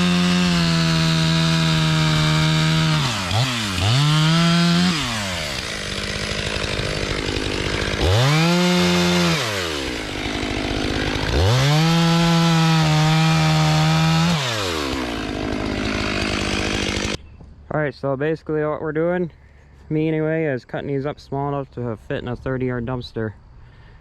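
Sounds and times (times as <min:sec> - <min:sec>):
chainsaw revving: 0:00.0 - 0:17.2.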